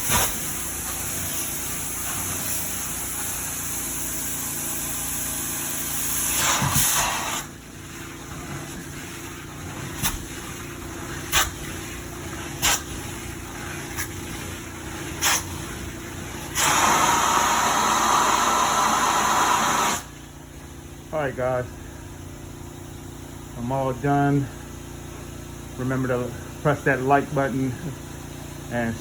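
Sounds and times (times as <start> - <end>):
vacuum hissing: 0.0 - 22.4.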